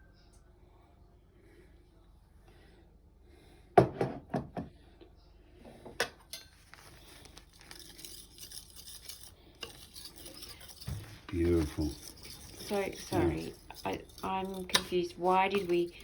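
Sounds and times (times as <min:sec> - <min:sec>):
knife scraping on sharpening stone: 0:07.5 - 0:16.0.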